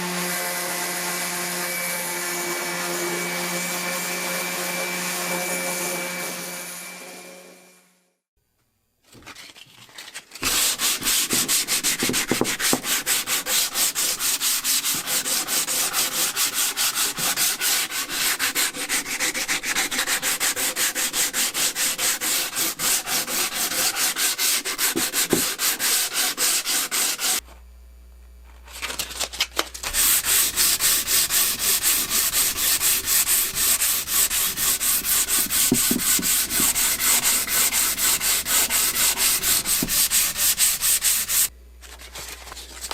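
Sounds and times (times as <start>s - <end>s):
hand sanding with sandpaper: 10.4s - 27.4s, 29.8s - 41.5s.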